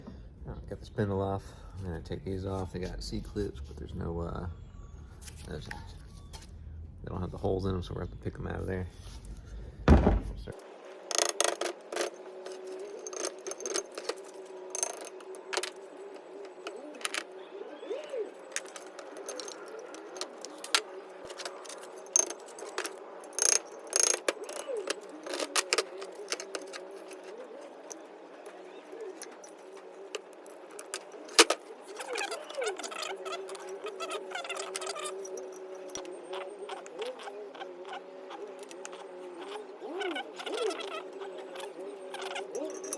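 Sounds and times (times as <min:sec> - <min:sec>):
steady background hum: 0:00.0 - 0:42.9
hand tools clinking on steel: 0:12.9 - 0:15.7, 0:42.2 - 0:42.9.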